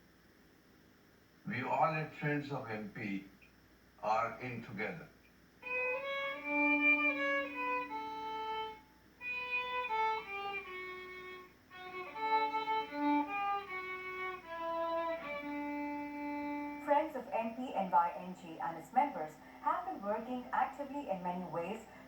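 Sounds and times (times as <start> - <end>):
violin slow melody: 5.6 - 17.0.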